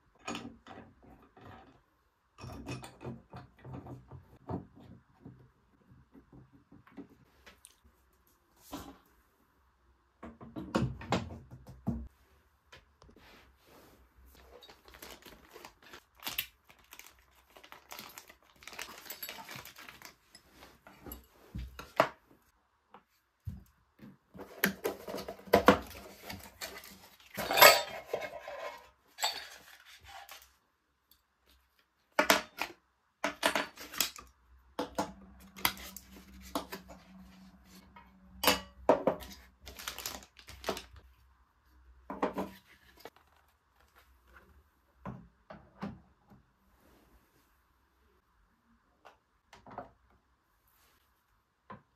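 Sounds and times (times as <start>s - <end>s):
dishes and utensils clinking: 27.3s - 29.9s.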